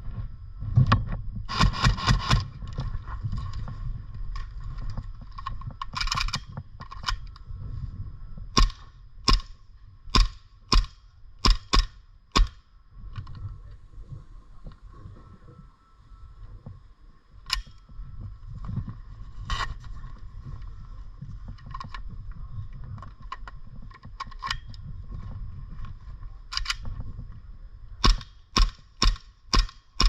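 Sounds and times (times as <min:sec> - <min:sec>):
airsoft gun shots: 0:08.6 - 0:12.6, 0:28.0 - 0:30.0.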